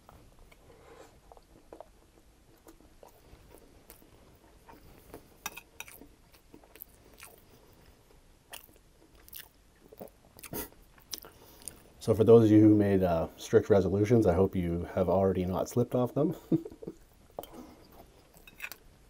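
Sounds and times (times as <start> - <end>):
chewing with sharp crunches: 0.0 - 11.9, 17.3 - 18.9.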